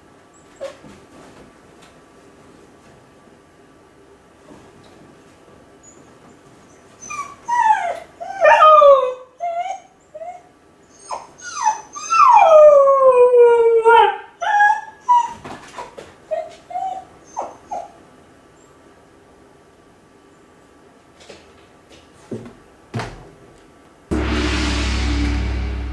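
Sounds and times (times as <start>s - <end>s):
dog whimpering yelps: 6.7s - 15.6s, 16.3s - 18.0s
dog howling and whining: 7.0s - 15.4s.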